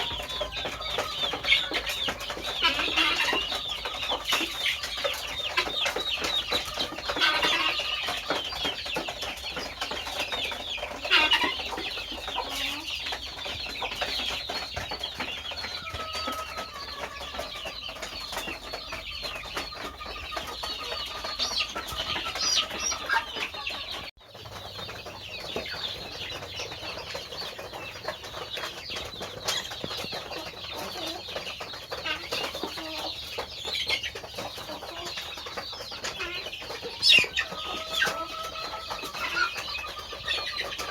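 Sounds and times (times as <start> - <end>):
chickens clucking: 0.0 - 40.9.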